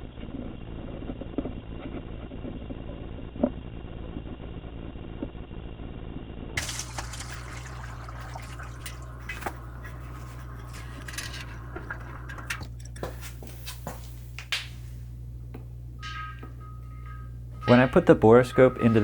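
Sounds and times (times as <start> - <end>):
metallic clicks of drain valve: 6.6 - 13.1
steady low hum: 6.6 - 19.0.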